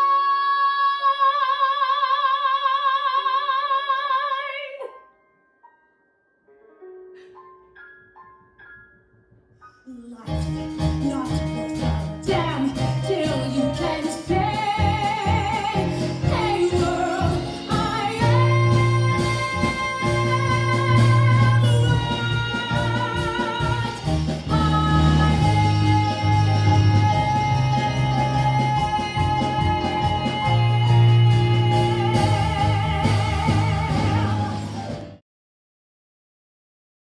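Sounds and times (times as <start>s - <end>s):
woman singing with vibrato: 0.0s - 4.9s, 10.0s - 35.1s
band backing track: 10.3s - 35.2s.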